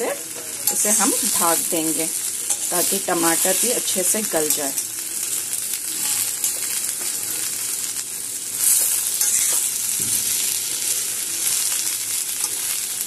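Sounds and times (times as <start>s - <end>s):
vegetables sizzling in hot oil: 0.0s - 13.0s
steel spoon stirring and scraping: 0.4s - 1.6s, 2.2s - 3.7s, 8.6s - 9.8s.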